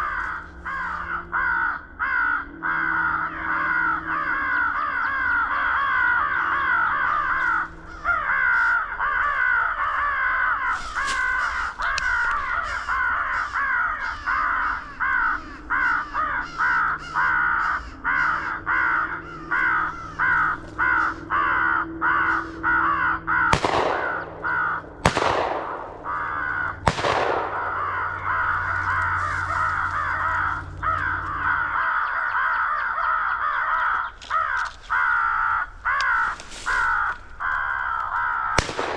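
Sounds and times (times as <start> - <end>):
electronic crow caws: 0.0 - 38.9
shotgun shots: 23.5 - 28.1, 38.6 - 38.9.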